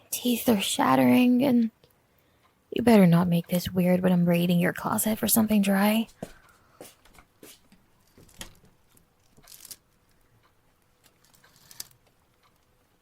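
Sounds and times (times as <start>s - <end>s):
clothes rustling: 6.2s - 9.8s.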